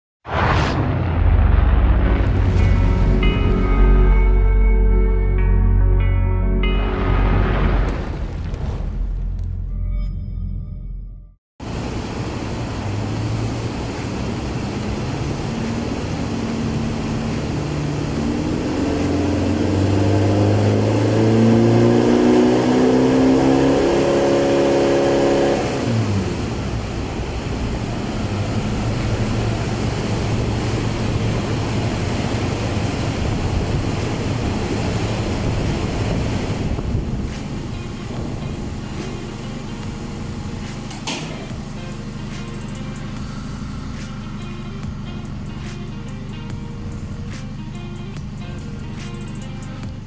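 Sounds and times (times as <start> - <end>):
pickup engine accelerating: 11.7 - 50.0.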